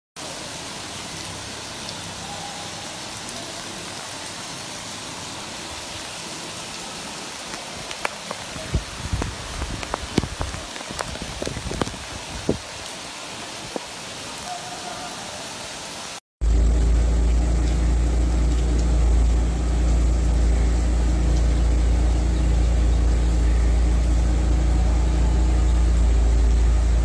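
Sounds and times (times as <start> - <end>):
heavy rain falling: 0.2 - 27.0
sharp knocks and low thumps: 8.1 - 12.6.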